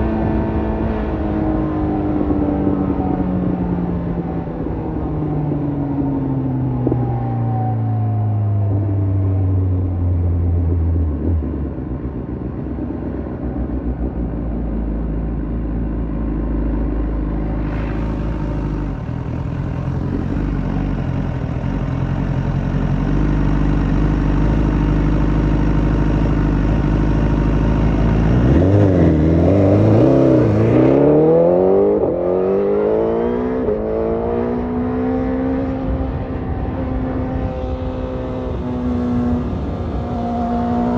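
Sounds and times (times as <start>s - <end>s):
motorcycle engine revving: 16.9s - 40.9s.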